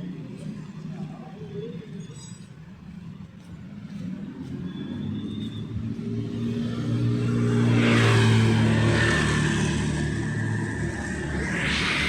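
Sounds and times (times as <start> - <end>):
vehicle engine passing: 6.1 - 12.0.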